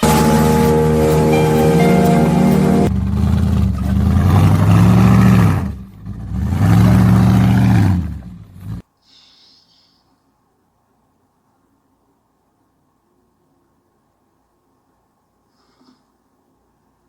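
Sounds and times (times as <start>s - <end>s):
music: 0.0s - 2.9s
car engine revving: 0.0s - 8.8s.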